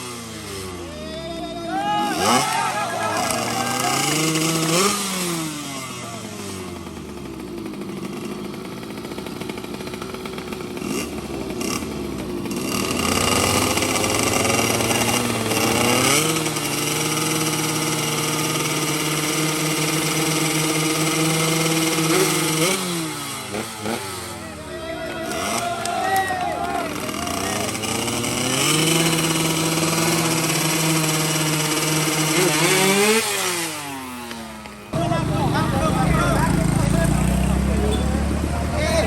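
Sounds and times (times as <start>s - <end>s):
motorcycle engine revving hard: 0.0s - 1.0s, 1.6s - 39.0s.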